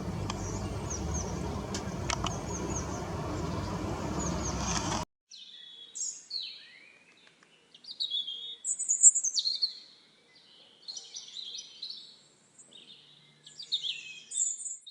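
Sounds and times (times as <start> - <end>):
songbird twittering and warbling: 0.0 - 5.8.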